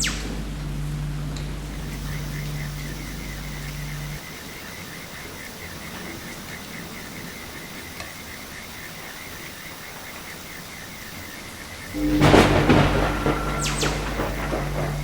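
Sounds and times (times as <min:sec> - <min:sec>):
faint rhythmic chirping: 0:00.0 - 0:15.0
steady rain: 0:00.0 - 0:15.0
loud thunderclap rumbling: 0:11.9 - 0:15.0.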